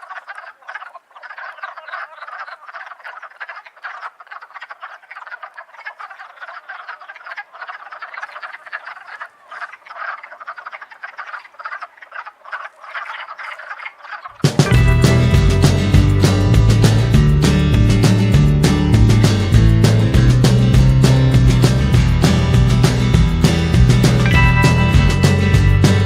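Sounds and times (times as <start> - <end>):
frogs croaking in chorus: 0.0 - 14.5
music: 14.4 - 26.0.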